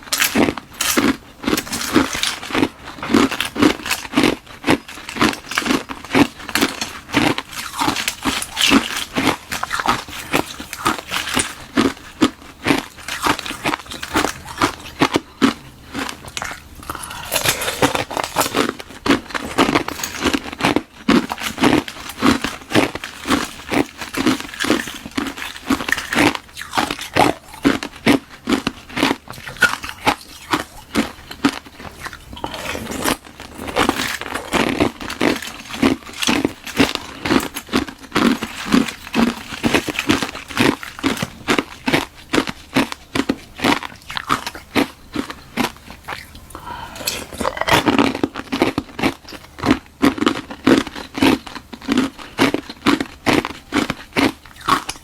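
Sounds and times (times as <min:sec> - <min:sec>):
ice being crunched: 0:16.4 - 0:27.8, 0:29.4 - 0:42.4.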